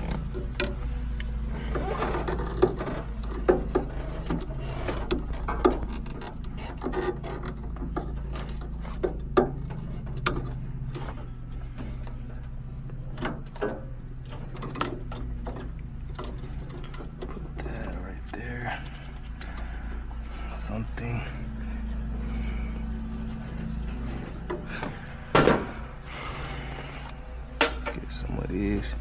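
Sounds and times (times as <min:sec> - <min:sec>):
clinks of hand tools and metal: 0:00.0 - 0:00.9, 0:01.6 - 0:19.7
steady low hum: 0:00.0 - 0:29.0.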